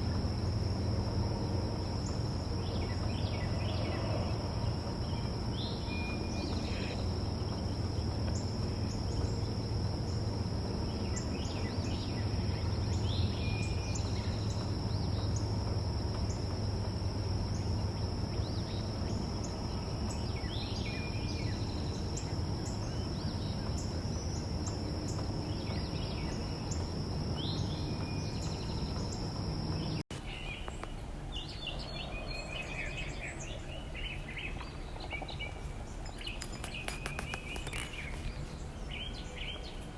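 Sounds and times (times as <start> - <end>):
high insect drone: 0.0 - 30.0
low background rumble: 0.0 - 39.9
songbirds chirping: 0.0 - 39.9.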